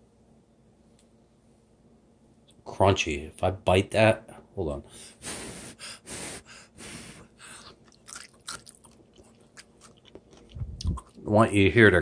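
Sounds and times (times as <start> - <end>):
crunchy chewing: 7.5 - 11.3.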